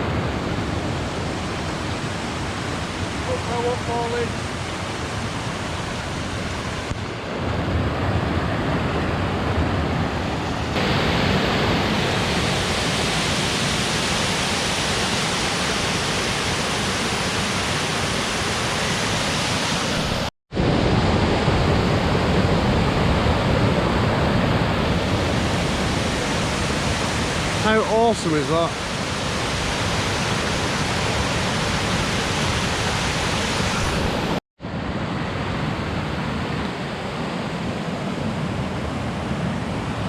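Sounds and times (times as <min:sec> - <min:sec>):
waterfall rushing: 0:00.0 - 0:07.0, 0:10.3 - 0:20.3, 0:23.9 - 0:34.4.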